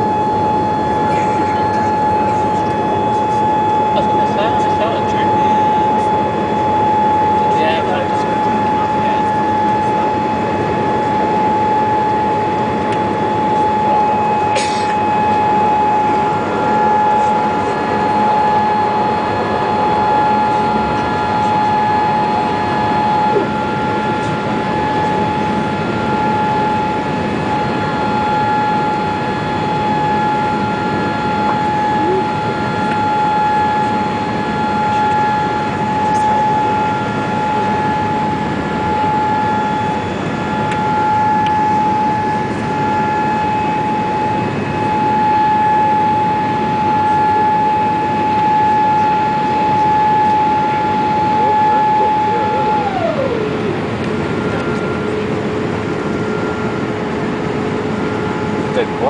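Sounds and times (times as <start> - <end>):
constant high whine: 0.0 - 59.0
cabin engine and air rush: 50.6 - 56.3.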